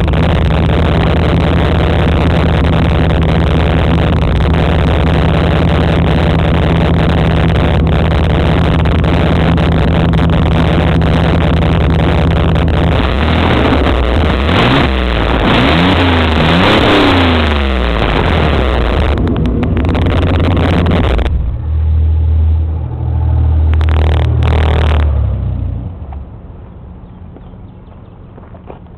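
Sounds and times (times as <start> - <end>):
car engine idling and revving: 0.0 - 28.9.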